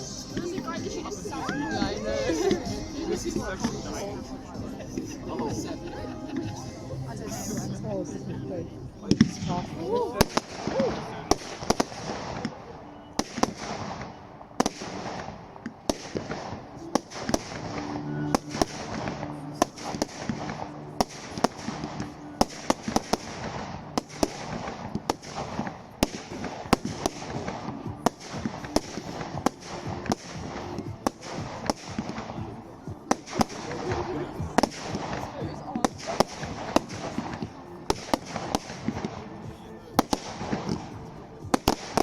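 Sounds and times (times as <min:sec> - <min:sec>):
fireworks bangs and crackles: 0:08.9 - 0:42.0.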